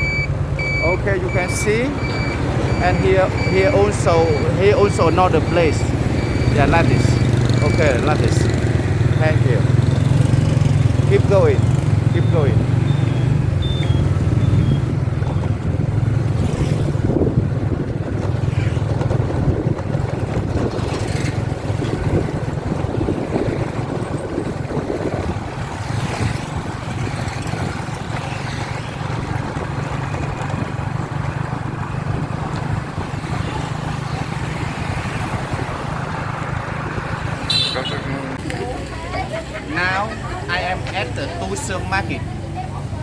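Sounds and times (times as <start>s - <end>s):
wind buffeting microphone: 12.6s - 37.5s.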